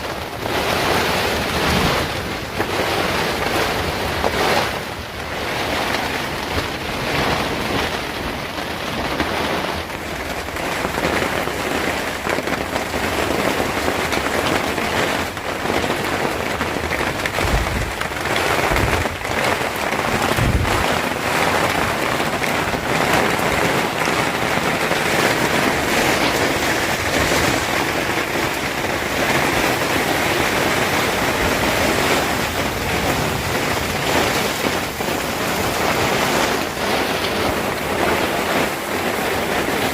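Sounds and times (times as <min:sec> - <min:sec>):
heavy rain falling: 0:00.0 - 0:39.9
short low thuds: 0:20.4 - 0:20.9.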